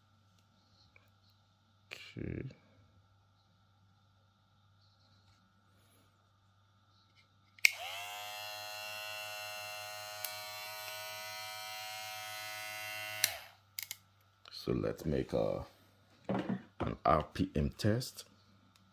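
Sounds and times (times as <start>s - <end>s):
hair clipper motor whine: 7.6s - 13.6s.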